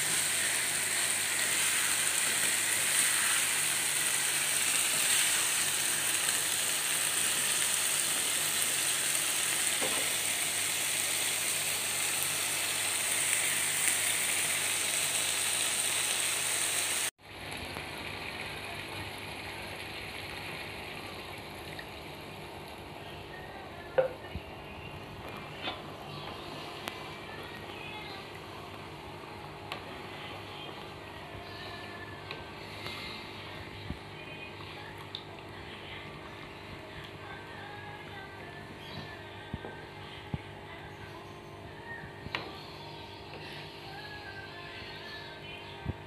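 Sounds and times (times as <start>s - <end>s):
food sizzling in a frying pan: 0.0s - 23.1s.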